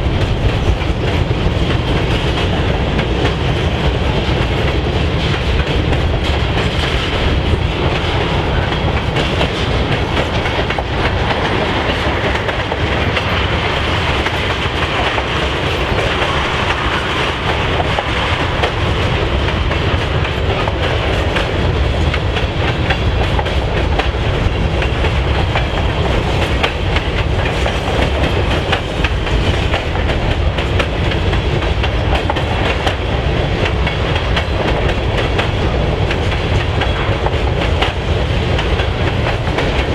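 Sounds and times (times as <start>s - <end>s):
train rolling past: 0.0s - 39.9s
wheels clicking over rail joints: 0.0s - 39.9s.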